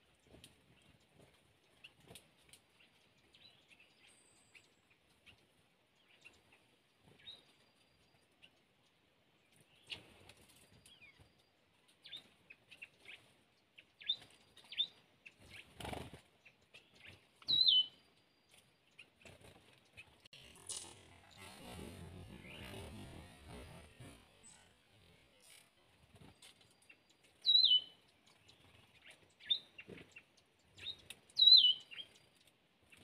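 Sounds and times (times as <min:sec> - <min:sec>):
wing flutters: 0:15.3 - 0:17.3, 0:18.6 - 0:27.5
high bird chirps: 0:17.0 - 0:18.0, 0:26.8 - 0:32.2.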